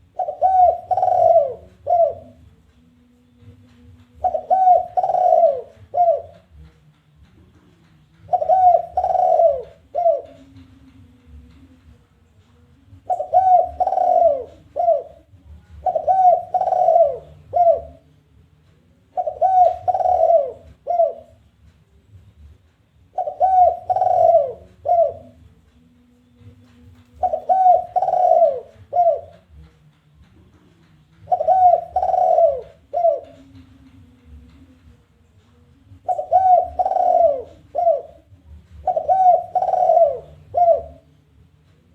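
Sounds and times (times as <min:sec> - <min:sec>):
dove cooing: 0:00.0 - 0:02.5, 0:04.2 - 0:06.7, 0:08.2 - 0:10.7, 0:13.0 - 0:18.1, 0:19.1 - 0:21.4, 0:23.1 - 0:25.5, 0:27.0 - 0:29.7, 0:31.2 - 0:34.7, 0:35.9 - 0:41.1.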